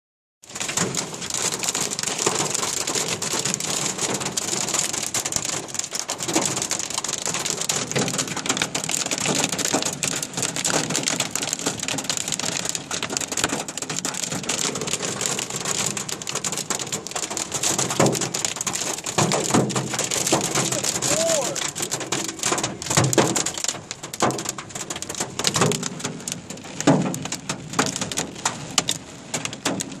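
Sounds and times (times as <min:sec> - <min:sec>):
hail and rain pelting a car: 0:00.4 - 0:30.0.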